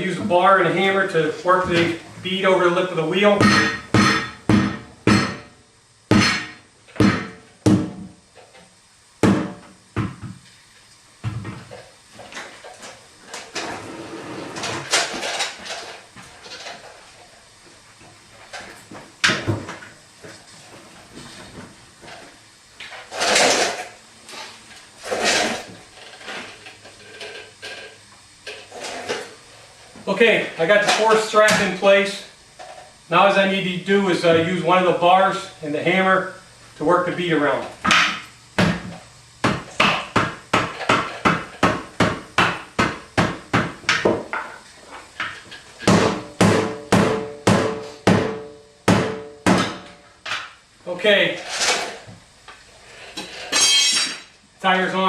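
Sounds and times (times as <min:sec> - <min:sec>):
tire scraping: 0:13.5 - 0:14.9.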